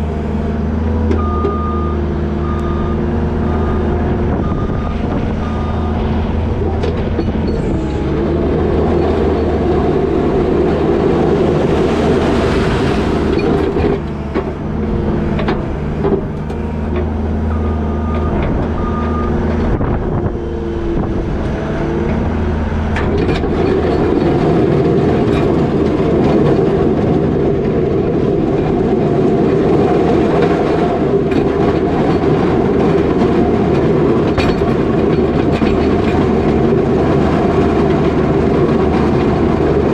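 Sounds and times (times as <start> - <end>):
skid steer diesel engine: 0.0 - 39.9
machine clanking and knocking: 4.5 - 20.0, 22.9 - 39.9.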